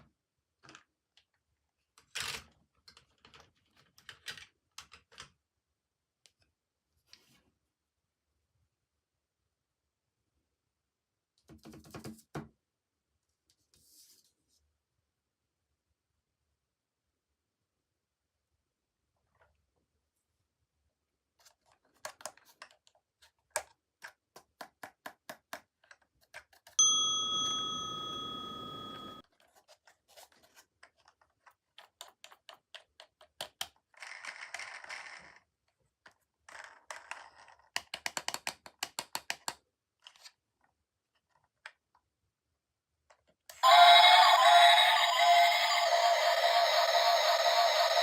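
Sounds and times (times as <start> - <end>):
plastic toys clicking and tapping: 21.4 - 26.8, 30.4 - 35.4, 36.0 - 40.4
bell-like ding: 26.8 - 29.2.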